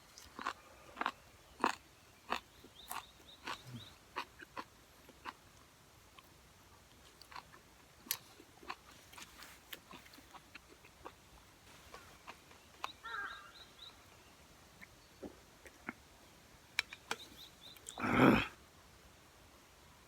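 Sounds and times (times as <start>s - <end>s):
close-up chewing: 0.0s - 13.6s.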